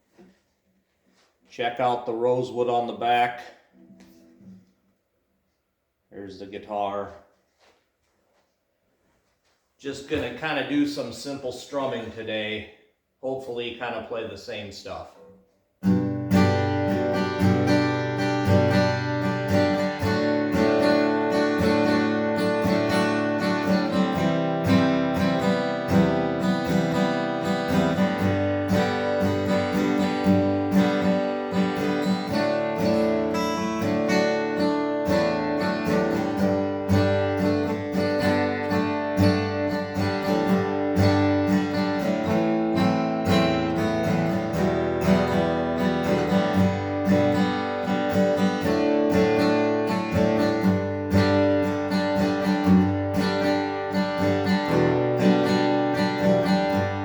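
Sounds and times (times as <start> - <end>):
acoustic guitar strumming chords: 15.2 - 57.0.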